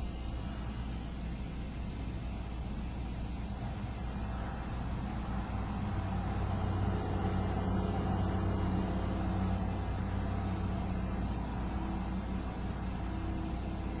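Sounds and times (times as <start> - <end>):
hard drive high-pitched ringing: 0.0 - 14.0.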